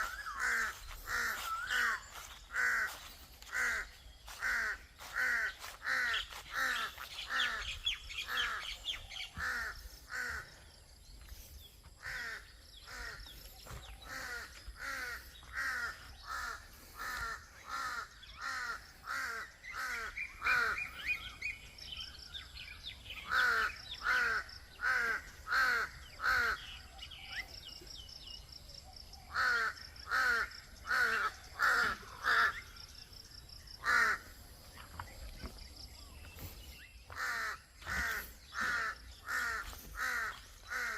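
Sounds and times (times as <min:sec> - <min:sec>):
birds whistling: 0:00.0 - 0:05.1.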